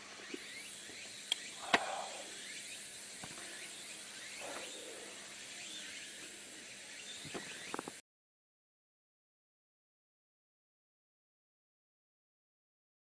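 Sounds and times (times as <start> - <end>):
faint insect sounds: 0.0 - 8.0
steady high hiss: 0.0 - 8.0.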